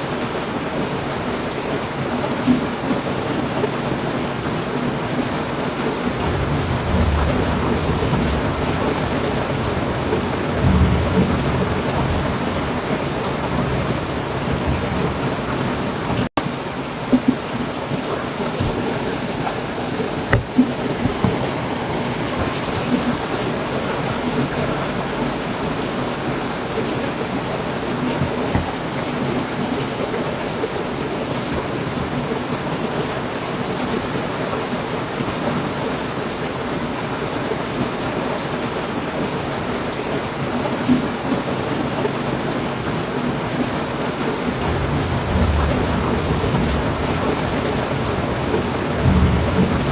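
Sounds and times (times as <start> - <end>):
heavy rain falling: 0.0 - 49.9
low rumble of thunder: 5.5 - 16.3, 44.1 - 49.9
louder raindrop taps: 6.1 - 23.7, 28.0 - 29.2, 44.6 - 49.9.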